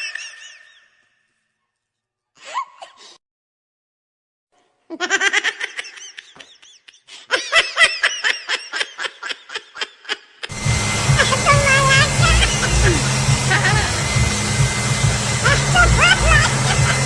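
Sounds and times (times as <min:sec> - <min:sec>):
person laughing hard: 0:04.9 - 0:17.0.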